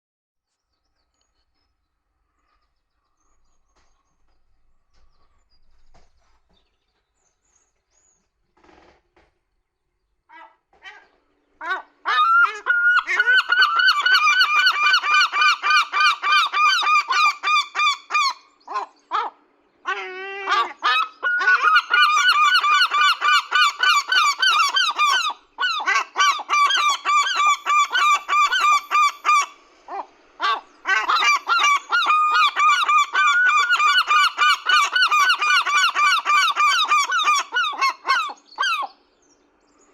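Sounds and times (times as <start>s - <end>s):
gulls calling: 10.3s - 39.0s.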